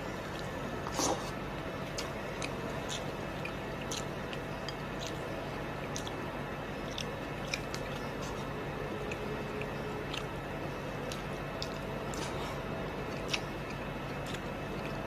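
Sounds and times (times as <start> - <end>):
steady background hum: 0.0 - 15.0
person chewing with wet mouth clicks: 1.9 - 6.2, 6.8 - 10.4, 11.0 - 15.0.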